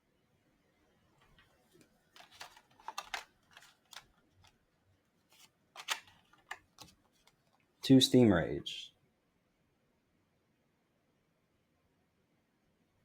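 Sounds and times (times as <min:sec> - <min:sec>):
cards flicking and rustling: 0:01.2 - 0:04.6, 0:05.3 - 0:07.6.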